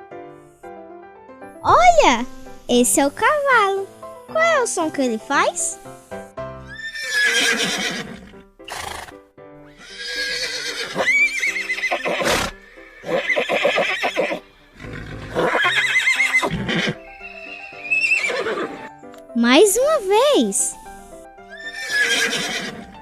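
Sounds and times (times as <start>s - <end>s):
background music: 0.0s - 23.0s
horse neighing: 6.7s - 18.9s, 21.5s - 22.9s.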